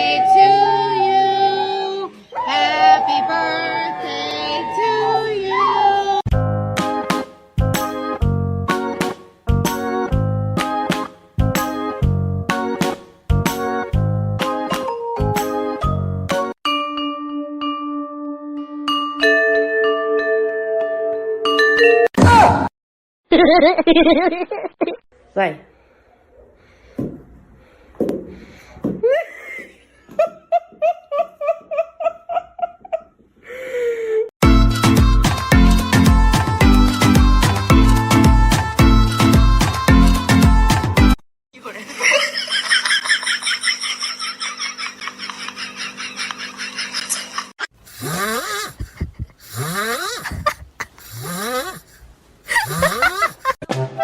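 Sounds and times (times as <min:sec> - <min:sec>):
person laughing: 0:23.3 - 0:25.0, 0:29.0 - 0:33.2, 0:41.8 - 0:53.7
animal snoring: 0:47.9 - 0:48.8, 0:49.4 - 0:50.3, 0:51.1 - 0:51.9.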